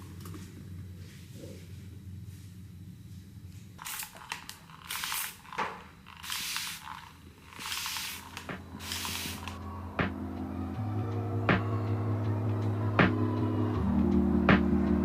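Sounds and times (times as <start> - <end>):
short hissing bursts: 3.8 - 5.5, 6.1 - 9.6
soft music: 8.5 - 15.0.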